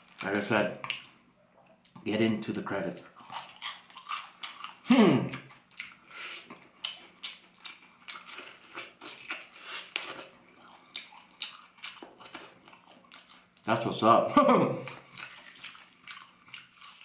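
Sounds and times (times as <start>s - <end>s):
crunchy chewing crackles: 3.0s - 13.8s, 14.9s - 17.0s.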